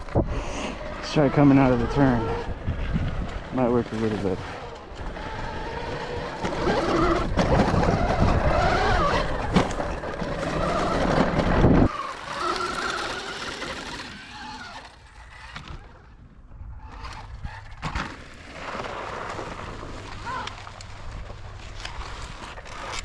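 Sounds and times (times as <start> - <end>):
wind noise: 0.0 - 13.1
electric motor whine: 0.0 - 16.2.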